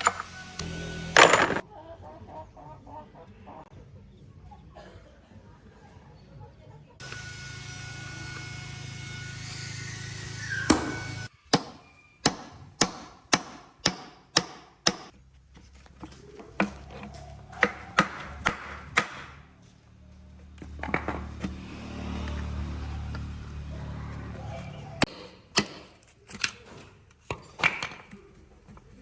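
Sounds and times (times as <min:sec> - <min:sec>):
hammer blows: 0:07.0 - 0:15.0.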